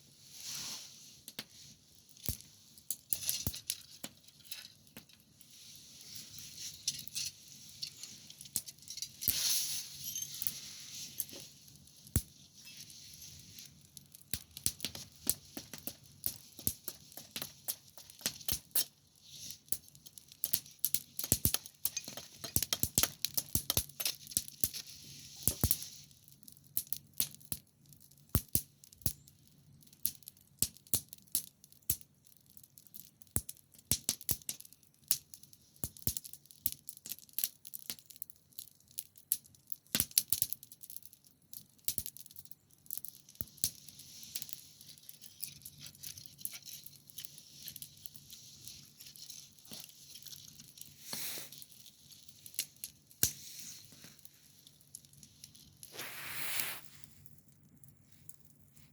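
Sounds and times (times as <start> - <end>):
campfire crackling and popping: 1.2 - 58.9
steady high hiss: 50.9 - 51.6, 55.9 - 57.2.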